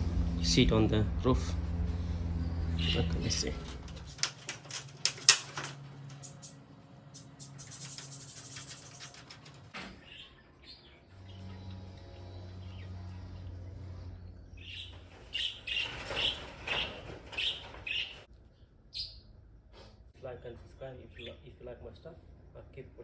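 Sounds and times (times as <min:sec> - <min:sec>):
low steady hum: 0:00.0 - 0:04.9
birds chirping: 0:02.0 - 0:19.4, 0:20.6 - 0:22.0.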